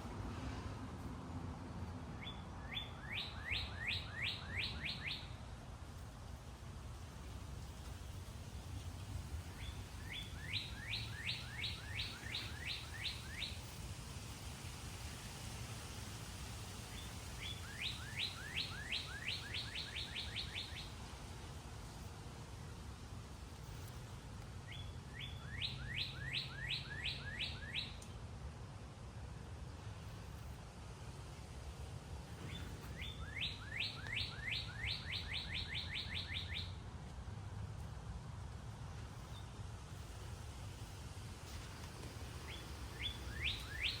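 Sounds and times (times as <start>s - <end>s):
songbird whistling: 2.2s - 5.4s, 9.6s - 13.6s, 17.4s - 20.9s, 24.7s - 28.0s, 32.5s - 36.8s, 42.5s - 44.0s.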